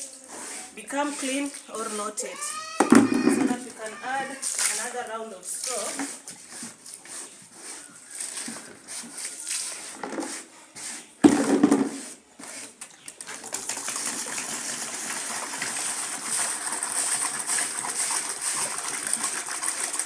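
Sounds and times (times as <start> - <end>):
water pouring: 13.1 - 20.0.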